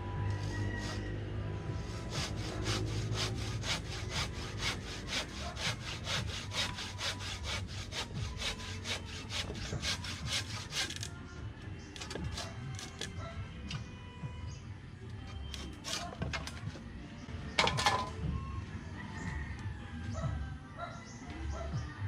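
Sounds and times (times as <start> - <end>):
hand saw cutting wood: 0.3 - 1.1, 1.7 - 11.1, 12.0 - 13.1, 15.5 - 16.6.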